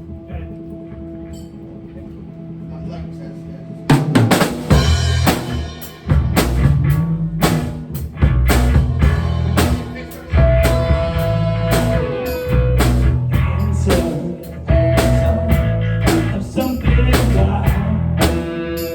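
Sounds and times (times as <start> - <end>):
rock music: 3.8 - 18.9
drum kit beat: 3.9 - 18.9
low bass notes: 3.9 - 18.9.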